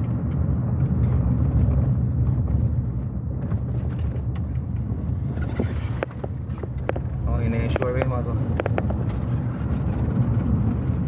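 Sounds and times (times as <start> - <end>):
car engine rumble: 0.0 - 11.0
road noise: 0.0 - 11.0.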